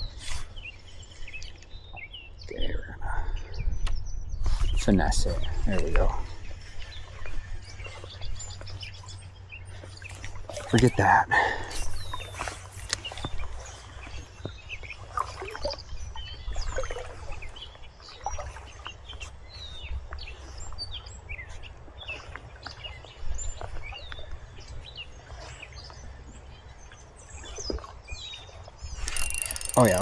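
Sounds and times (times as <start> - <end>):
small birds chirping: 8.6 - 13.2, 29.1 - 30.0.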